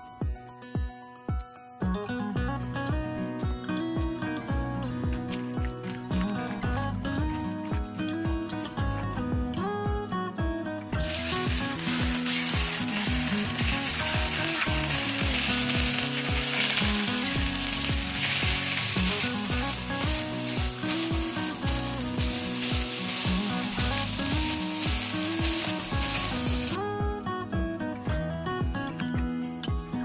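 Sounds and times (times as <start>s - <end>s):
background music with steady beat: 0.0s - 30.0s
chicken sizzling in a skillet: 11.0s - 26.8s.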